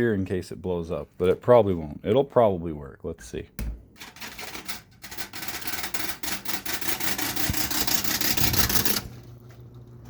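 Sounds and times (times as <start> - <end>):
fan motor hum: 3.6 - 10.0.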